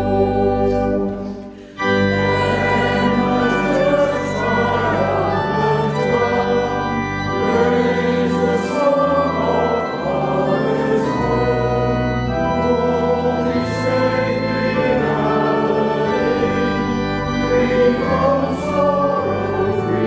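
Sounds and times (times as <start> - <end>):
church organ: 0.0 - 20.0
congregation singing a hymn: 0.0 - 20.0.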